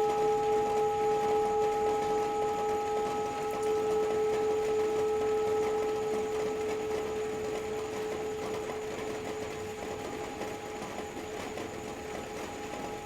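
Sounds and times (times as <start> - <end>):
singing bowl ringing: 0.0 - 8.4.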